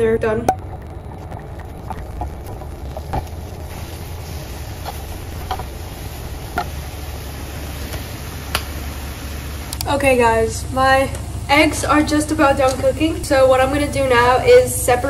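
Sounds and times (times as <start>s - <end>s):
food sizzling in a frying pan: 1.8s - 9.7s.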